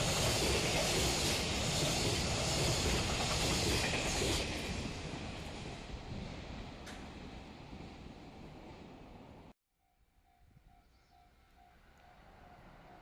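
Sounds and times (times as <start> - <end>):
freight train wheels rumbling on rails: 0.0 - 9.5.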